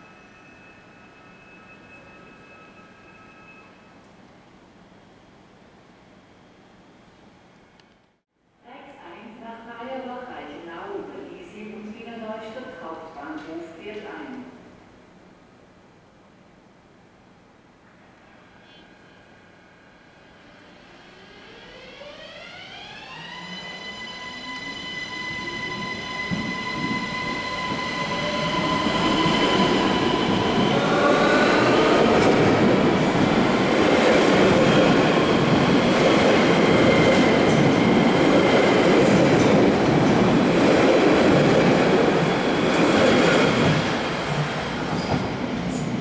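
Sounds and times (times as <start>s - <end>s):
electric train whine: 18.2s - 45.9s
train wheels rumbling on rail: 25.3s - 46.0s.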